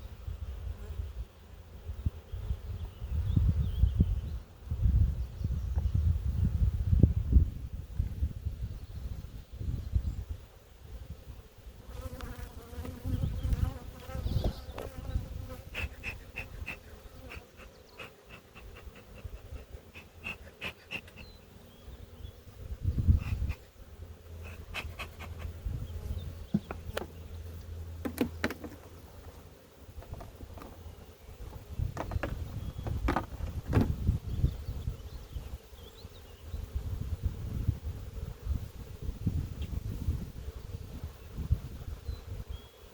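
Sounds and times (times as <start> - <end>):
bees buzzing: 11.1 - 42.9.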